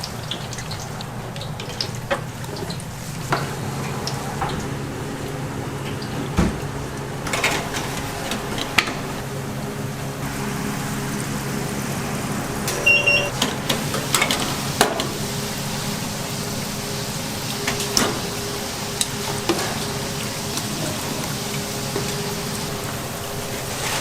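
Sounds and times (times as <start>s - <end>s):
oil sizzling in deep fryer: 0.0s - 24.0s
short beep: 12.8s - 13.4s.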